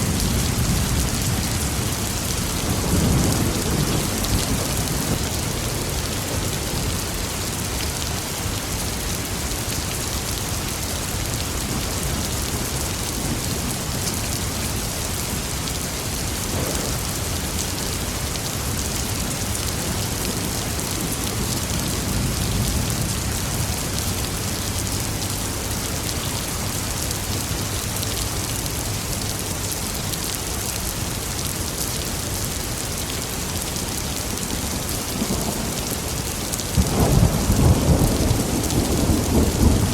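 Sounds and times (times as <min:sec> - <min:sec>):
low rumble of thunder: 0:00.0 - 0:07.0, 0:16.2 - 0:17.7, 0:34.4 - 0:39.9
steady rain: 0:00.0 - 0:39.9.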